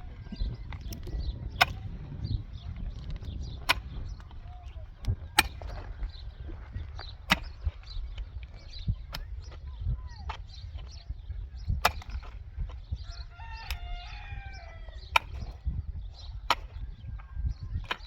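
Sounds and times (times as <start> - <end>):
rooster crowing: 13.1 - 15.0.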